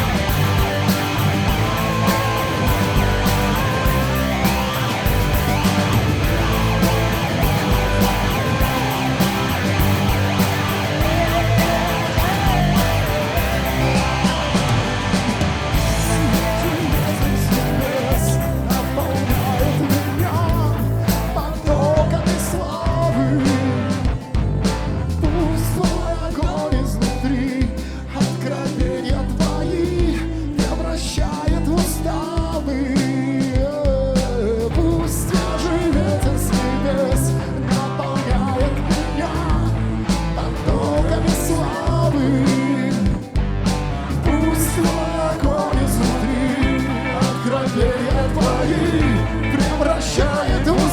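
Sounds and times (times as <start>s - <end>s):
drum hits: 0.0s - 22.0s
band playing rock-style song: 0.0s - 50.9s.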